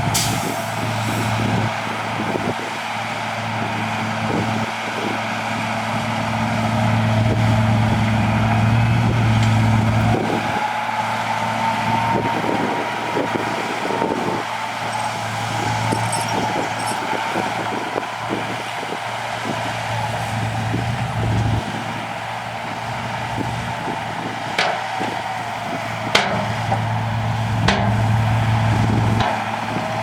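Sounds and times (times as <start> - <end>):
heavy machinery diesel engine: 0.0 - 30.0
metallic clanks and rattles: 14.8 - 17.4, 24.5 - 25.3, 26.1 - 29.9.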